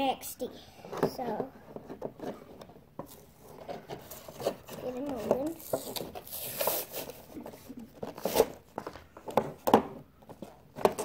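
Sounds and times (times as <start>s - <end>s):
packaging tearing: 5.4s - 7.3s.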